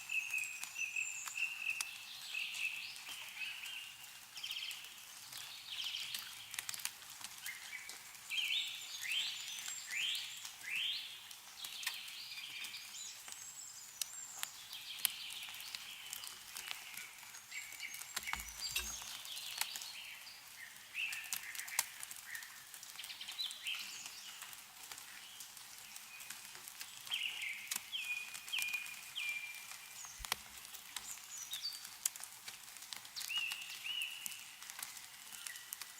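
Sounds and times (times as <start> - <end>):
meltwater dripping: 14.0 - 19.9, 21.3 - 35.9
birds chirping and calling: 18.1 - 19.3.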